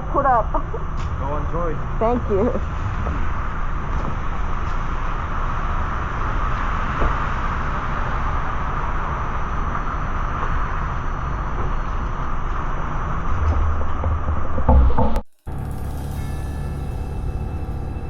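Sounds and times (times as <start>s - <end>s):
motorcycle engine rumble: 15.4s - 18.0s.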